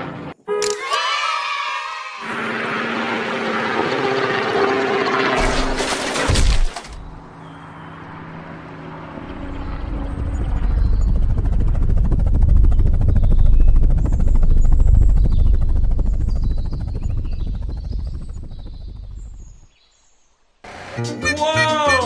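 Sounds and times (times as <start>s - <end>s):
helicopter rotor chop: 2.2s - 19.8s.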